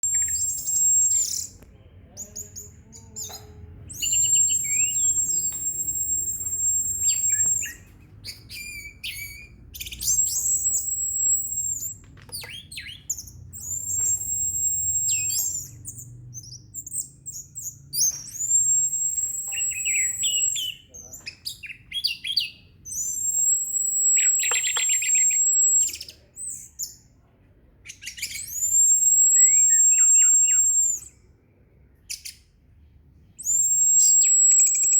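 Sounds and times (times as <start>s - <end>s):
thrush singing chirps and whistles: 0.0s - 1.6s, 2.2s - 27.0s, 27.9s - 31.2s, 33.3s - 34.9s
high steady buzzing bird notes: 4.0s - 7.8s, 13.1s - 20.8s.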